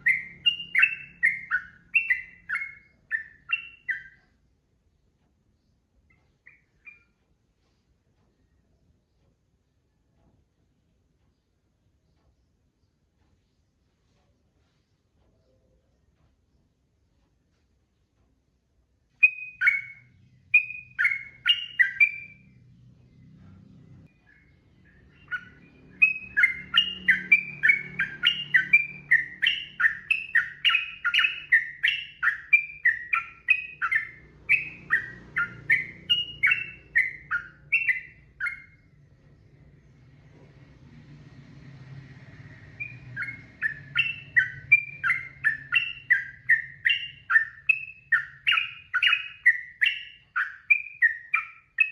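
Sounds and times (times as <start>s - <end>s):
bird singing repeated notes: 0.0s - 7.6s, 19.0s - 40.3s, 42.2s - 51.9s
faint low hum: 0.0s - 51.9s.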